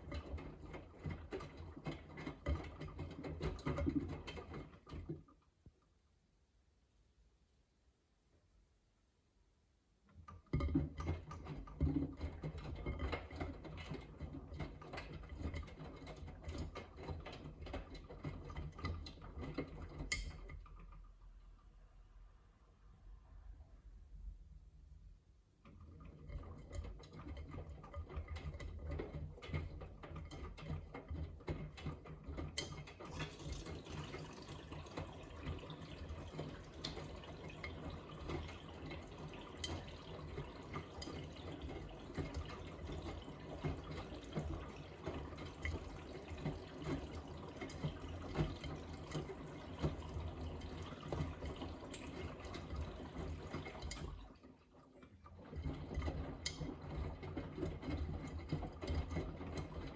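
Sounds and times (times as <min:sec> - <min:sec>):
washing machine drum tumbling: 0:25.8 - 0:54.3.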